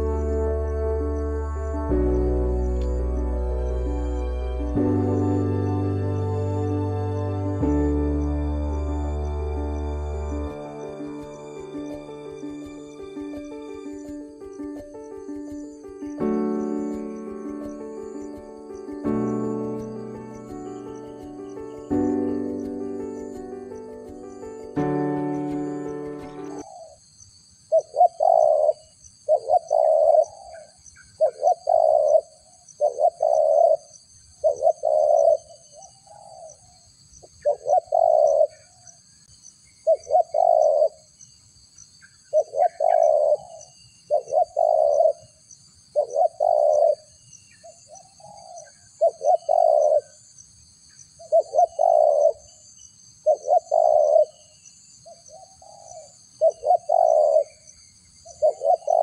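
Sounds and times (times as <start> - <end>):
dove cooing: 27.7 - 33.8, 34.4 - 35.4, 37.4 - 38.5, 39.9 - 41.0, 42.4 - 45.2, 46.0 - 47.0, 48.2 - 50.1, 51.3 - 52.4, 53.3 - 54.4, 55.6 - 57.5, 58.4 - 59.0.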